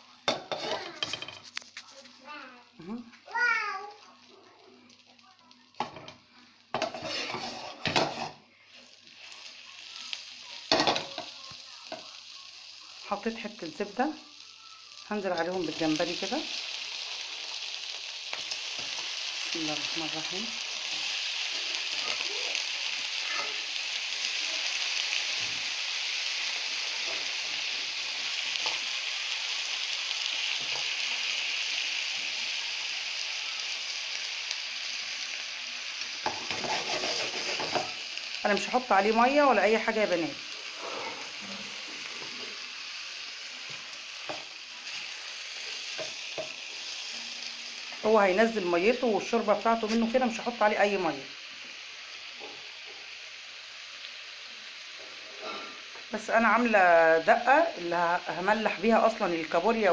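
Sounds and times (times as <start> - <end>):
butter sizzling in frying pan: 0.0 - 59.9
utensil scraping pan: 0.3 - 1.6, 6.7 - 8.4, 36.2 - 38.0.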